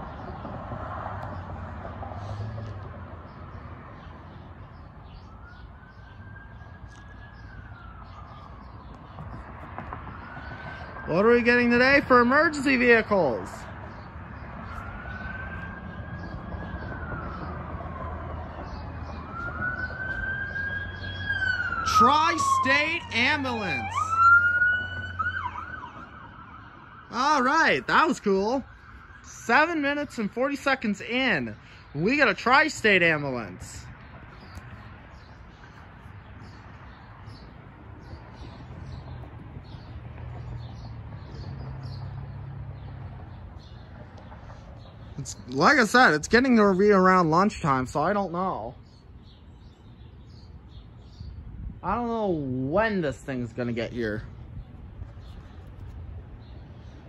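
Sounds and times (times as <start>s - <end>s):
low traffic rumble: 0.0s - 57.0s
ambulance siren wailing: 4.9s - 33.6s.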